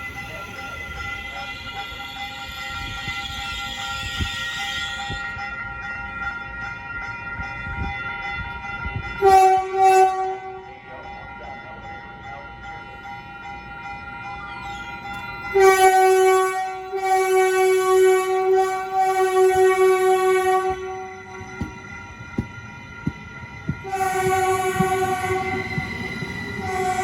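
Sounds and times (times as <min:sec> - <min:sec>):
train horn blasts: 0:00.9 - 0:05.4, 0:09.2 - 0:10.8, 0:15.4 - 0:21.8, 0:23.8 - 0:27.0
steady ringing tone: 0:19.7 - 0:27.0.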